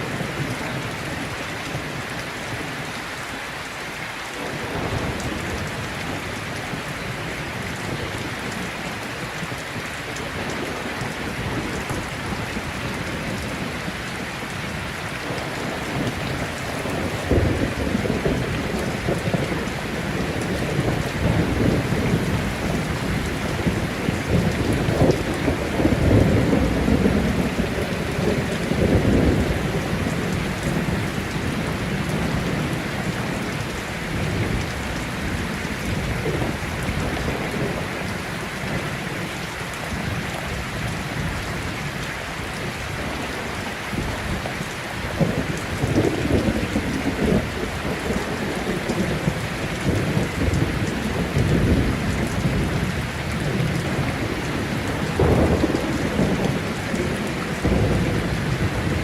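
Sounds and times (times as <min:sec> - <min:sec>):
heavy rain falling: 0:00.0 - 0:59.0
rolling thunder: 0:10.5 - 0:38.9, 0:45.2 - 0:59.0.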